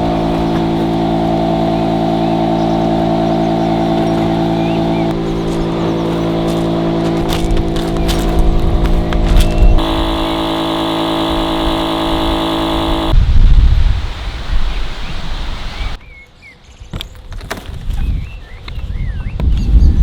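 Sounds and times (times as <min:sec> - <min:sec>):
vehicle engine running: 0:00.0 - 0:13.2
wind rumble on microphone: 0:00.0 - 0:16.0, 0:16.8 - 0:20.0.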